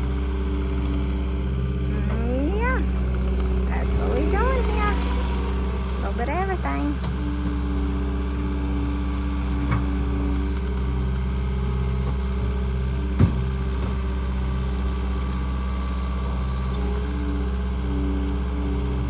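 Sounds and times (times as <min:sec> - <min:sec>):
heavy machine engine running: 0:00.0 - 0:19.0.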